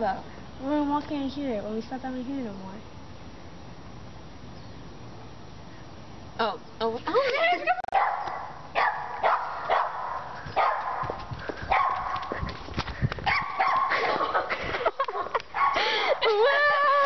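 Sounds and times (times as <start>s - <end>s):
dog barking: 7.9s - 12.3s, 13.3s - 14.0s, 15.6s - 15.8s.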